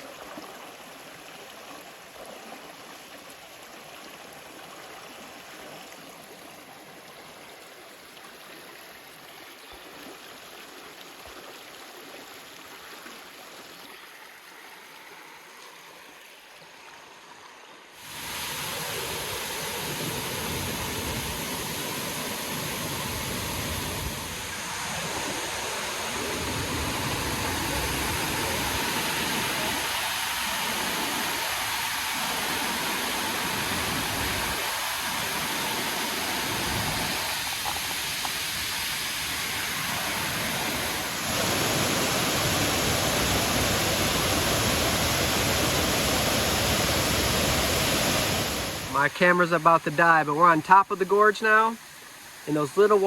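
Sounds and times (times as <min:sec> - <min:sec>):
waterfall rushing: 0:18.0 - 0:53.0.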